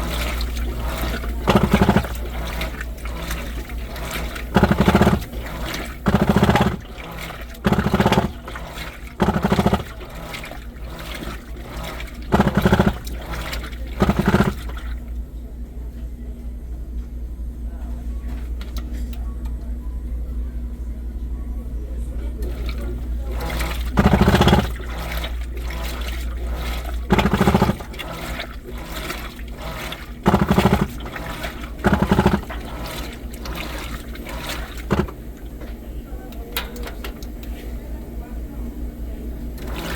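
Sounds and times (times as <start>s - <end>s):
water sloshing: 0.0s - 15.1s, 22.4s - 35.9s, 39.6s - 39.9s
washing machine buzzing rattle: 0.0s - 15.2s, 22.3s - 39.9s
washing machine hum: 0.0s - 39.9s.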